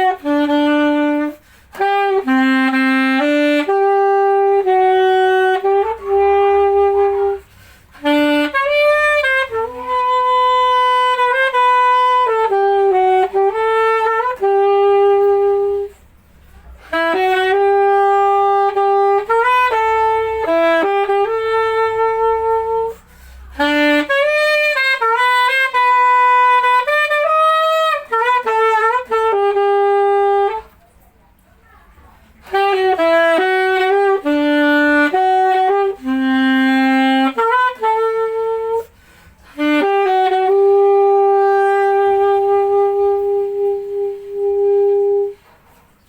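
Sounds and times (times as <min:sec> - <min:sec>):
saxophone playing slow melody: 0:00.0 - 0:46.0.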